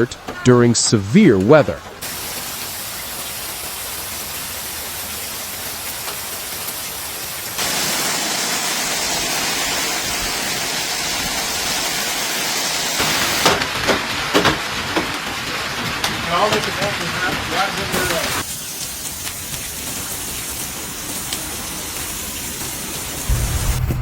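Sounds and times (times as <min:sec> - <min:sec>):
person speaking: 0:00.0 - 0:01.9
heavy rain and hail pounding: 0:01.8 - 0:24.0.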